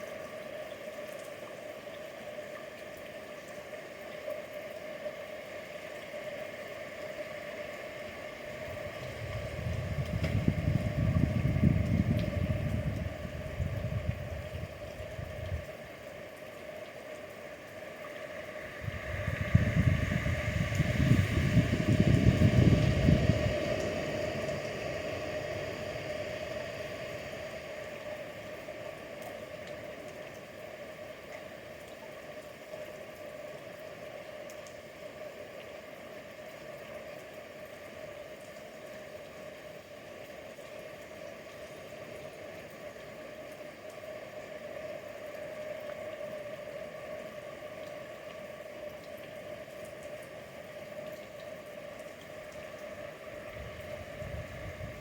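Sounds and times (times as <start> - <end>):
steady mid-pitched hum: 6.6 - 16.2, 17.4 - 30.2, 51.6 - 55.0.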